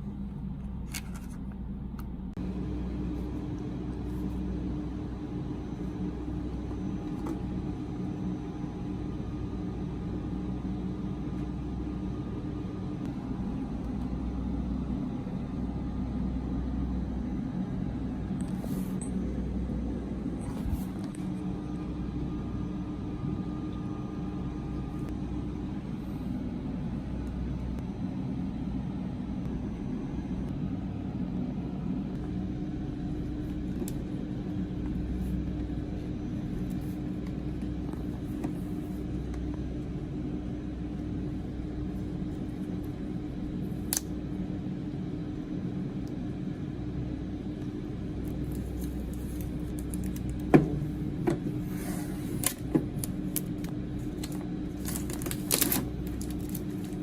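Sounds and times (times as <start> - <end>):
steady low hum: 0.0 - 57.0
plastic package crinkling: 48.4 - 50.5, 52.4 - 57.0.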